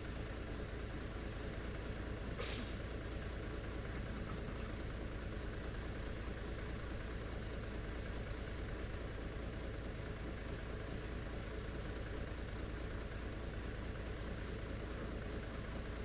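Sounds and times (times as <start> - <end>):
diesel truck engine rumbling: 0.0 - 16.0
brief hiss: 2.4 - 3.0.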